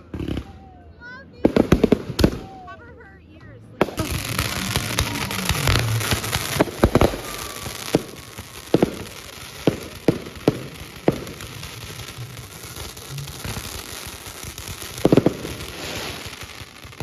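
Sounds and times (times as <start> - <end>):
firework bangs: 0.0 - 0.8, 1.4 - 2.8, 3.8 - 17.0
crackling hiss: 3.8 - 17.0.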